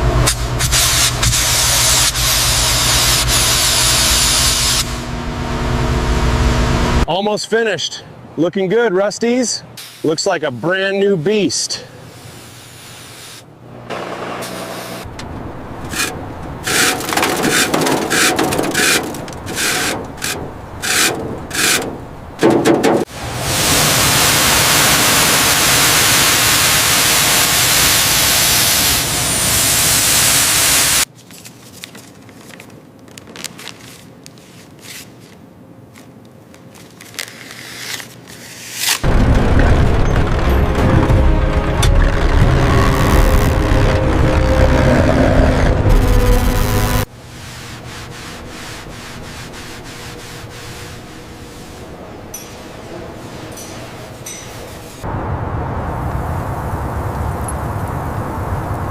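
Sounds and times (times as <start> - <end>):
rubbing and scrubbing: 15.9 - 23.1, 47.3 - 55.0
loud spraying hiss: 23.1 - 31.1.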